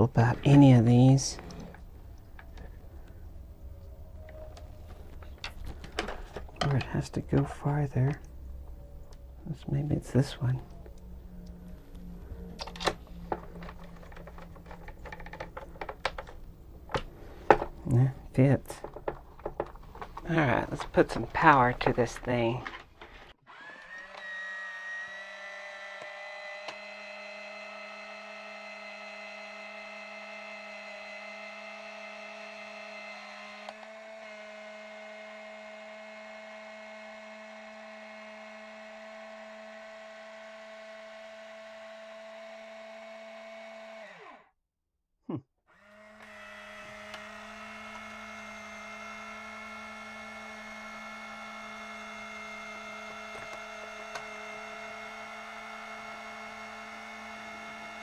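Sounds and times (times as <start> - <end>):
small electric motor whine: 0.4 - 18.2, 23.2 - 44.5, 45.7 - 58.0.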